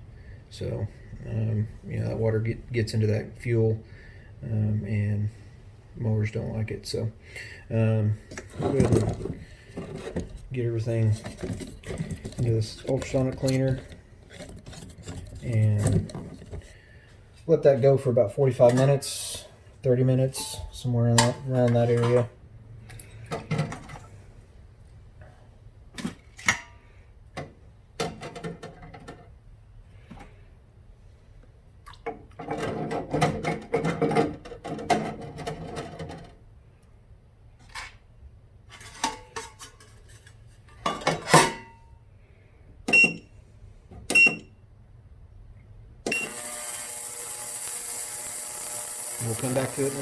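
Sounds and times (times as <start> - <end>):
ultrasonic cleaner hissing: 46.1 - 50.0.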